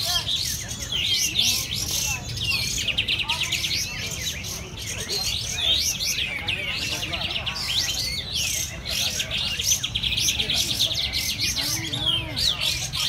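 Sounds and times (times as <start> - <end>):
chorus of songbirds calling: 0.0 - 13.0.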